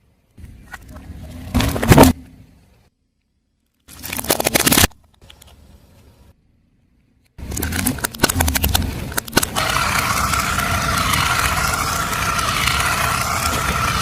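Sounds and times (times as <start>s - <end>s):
tyre crushing something brittle: 3.8s - 5.1s
car rolling with whine: 7.4s - 14.0s.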